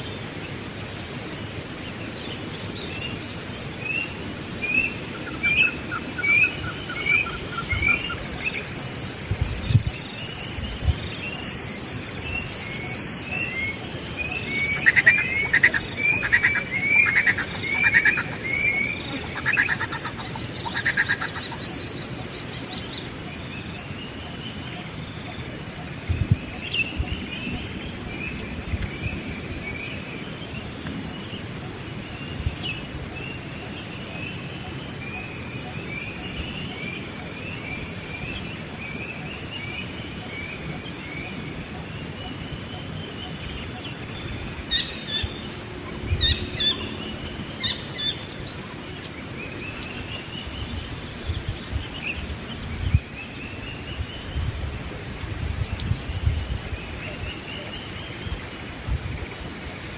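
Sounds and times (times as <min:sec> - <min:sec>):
birds chirping and calling: 0:12.8 - 0:28.5.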